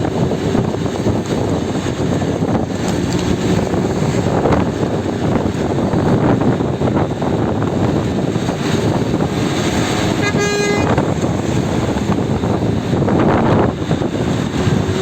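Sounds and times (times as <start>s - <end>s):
wind buffeting microphone: 0.0s - 15.0s
vehicle horn toot: 10.1s - 11.2s.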